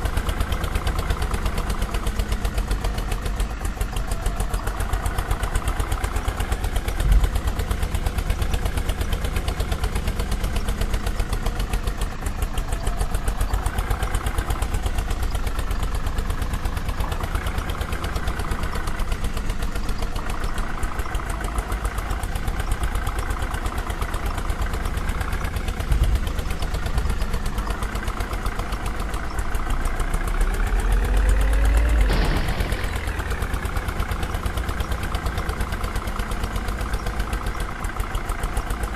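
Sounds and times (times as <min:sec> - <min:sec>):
vehicle engine idling and revving: 0:00.0 - 0:38.9.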